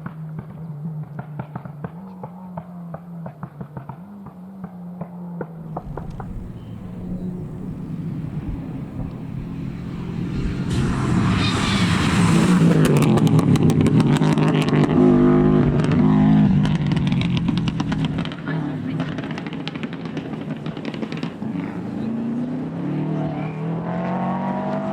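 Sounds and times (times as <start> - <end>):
rally car engine approaching: 0.3 - 24.9
sharp crackles: 5.7 - 13.4.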